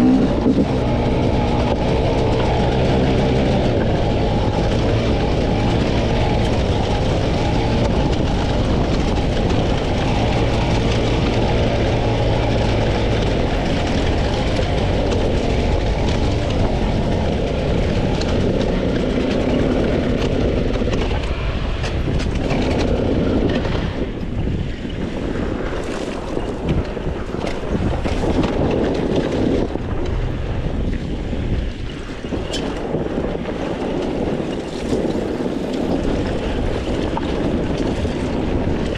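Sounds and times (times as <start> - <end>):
dirt bike engine revving: 0.0 - 20.5.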